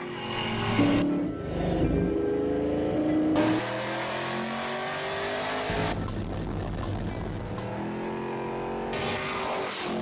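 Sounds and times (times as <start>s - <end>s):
race car engine revving: 0.5s - 6.1s.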